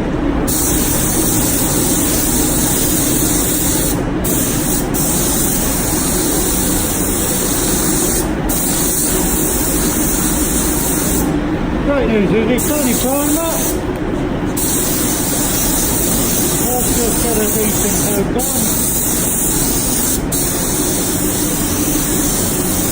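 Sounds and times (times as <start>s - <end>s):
steady low hum: 0.0s - 22.9s
air spray gun hissing: 0.5s - 11.4s, 12.6s - 13.9s, 14.5s - 22.9s.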